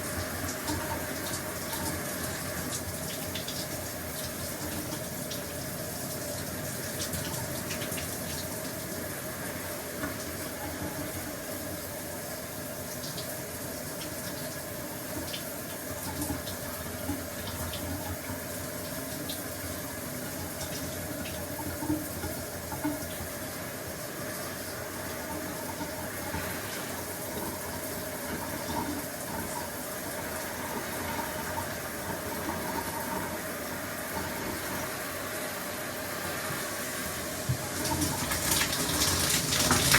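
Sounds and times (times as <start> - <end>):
water drips and splashes: 0.0 - 12.0, 37.1 - 39.9.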